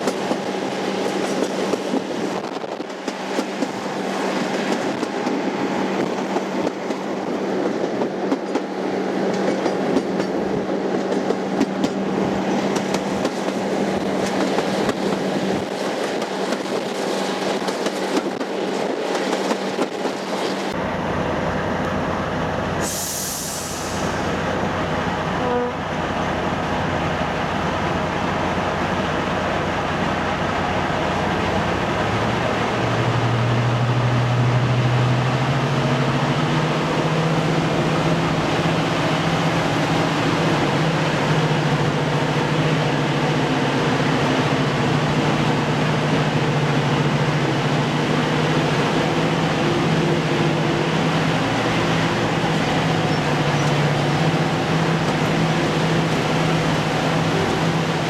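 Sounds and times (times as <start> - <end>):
train wheels clicking over rail joints: 0.0 - 20.8
brief high hiss: 22.8 - 24.4.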